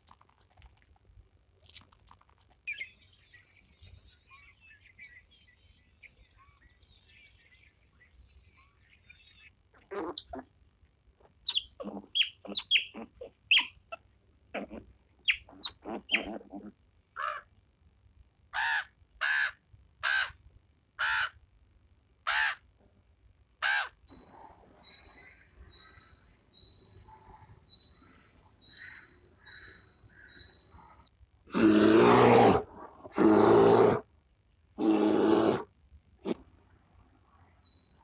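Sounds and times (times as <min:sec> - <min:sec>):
soft high animal call: 0:11.5 - 0:14.0, 0:14.6 - 0:17.5
loud animal calls: 0:14.5 - 0:17.5, 0:21.0 - 0:21.4, 0:23.6 - 0:24.3, 0:34.8 - 0:36.4.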